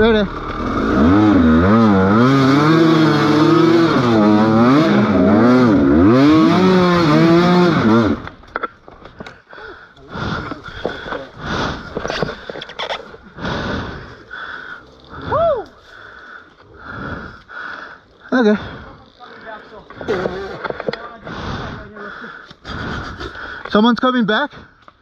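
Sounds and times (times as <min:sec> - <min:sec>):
motorcycle engine revving: 0:00.0 - 0:08.4.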